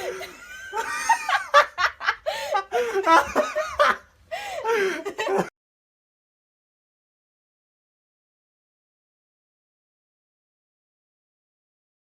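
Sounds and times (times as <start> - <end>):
people laughing: 0.0 - 5.5.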